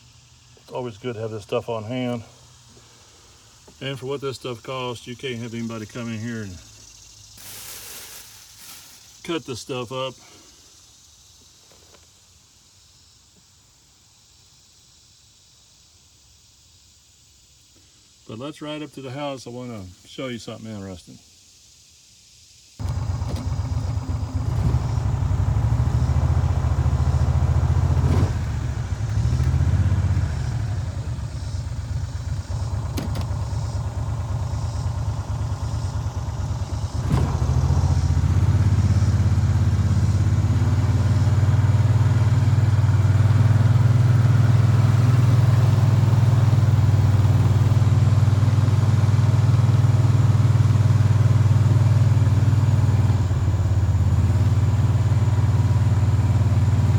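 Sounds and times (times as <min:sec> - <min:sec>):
farm vehicle engine drone: 0:22.8 - 0:56.9.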